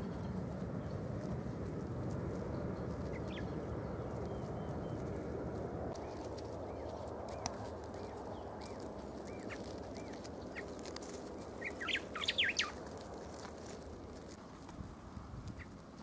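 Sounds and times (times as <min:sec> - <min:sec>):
wild birds calling: 0:02.4 - 0:13.9.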